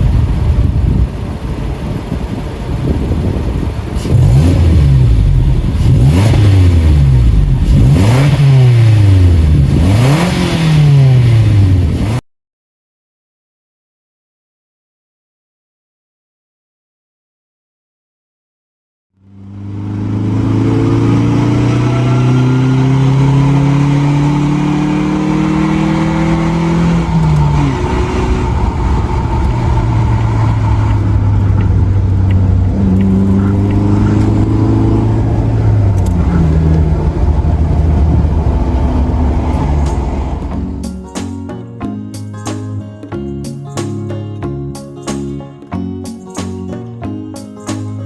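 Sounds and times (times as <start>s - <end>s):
car exhaust while driving: 0.0s - 12.2s, 19.2s - 41.0s.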